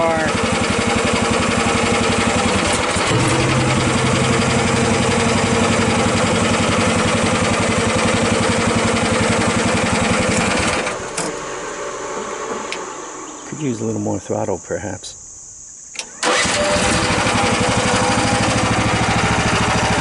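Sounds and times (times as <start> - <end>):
small excavator engine running: 0.0 - 13.6, 16.0 - 20.0
low hum: 1.3 - 13.8
fast even pulse: 3.0 - 9.6.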